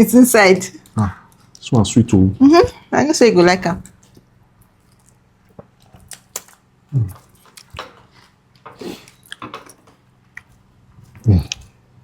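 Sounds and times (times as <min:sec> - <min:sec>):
person chewing and smacking: 0:04.0 - 0:11.8
person murmuring: 0:06.9 - 0:07.2, 0:11.2 - 0:11.6.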